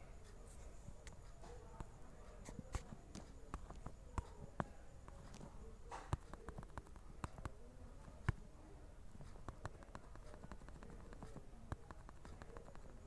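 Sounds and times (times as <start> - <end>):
faint low background noise: 0.0 - 13.0
light clicks and taps: 0.2 - 13.0.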